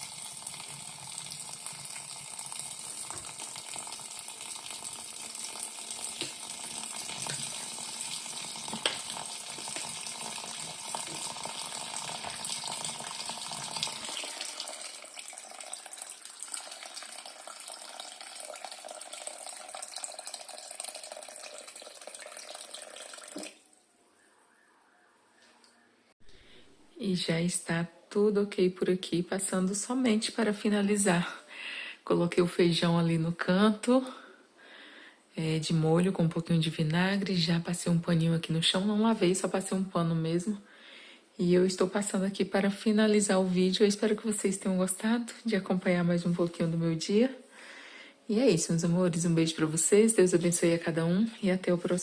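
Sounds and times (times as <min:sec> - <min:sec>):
tap running into sink: 0:08.6 - 0:10.0, 0:12.0 - 0:12.9.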